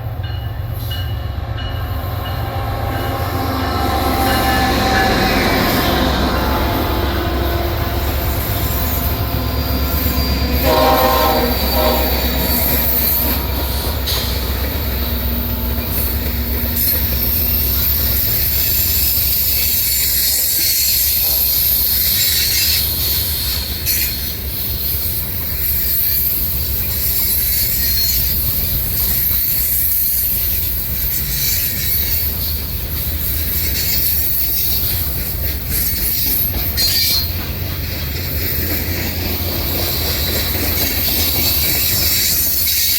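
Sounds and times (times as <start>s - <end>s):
train rumbling past: 0.0s - 42.9s
train wheel clatter: 0.0s - 42.9s
locomotive horn blast: 1.2s - 14.5s
high-pitched wheel squeal: 2.2s - 14.6s, 15.2s - 37.4s, 39.8s - 42.9s.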